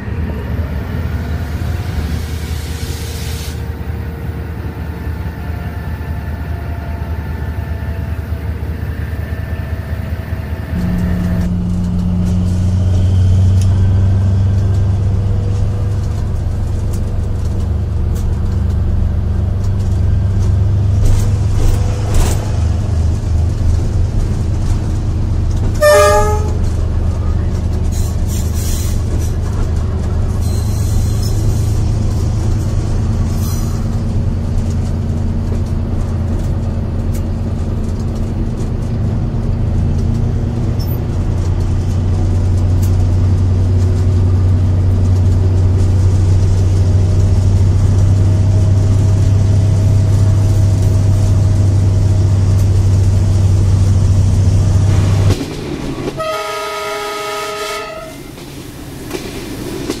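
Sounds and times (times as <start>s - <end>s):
train rumbling: 0.0s - 60.0s
train horn blast: 10.7s - 12.5s, 25.8s - 26.7s, 56.1s - 58.3s.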